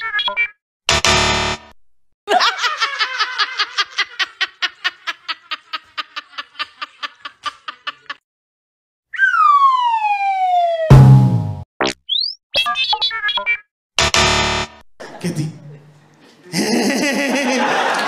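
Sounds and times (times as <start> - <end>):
tone sliding down in pitch: 9.1 - 11.6.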